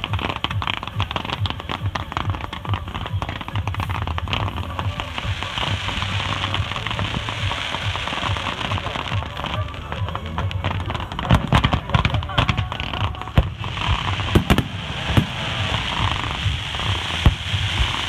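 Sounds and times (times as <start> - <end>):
fireworks crackling: 0.0 - 18.0
fireworks low thuds: 0.0 - 18.0.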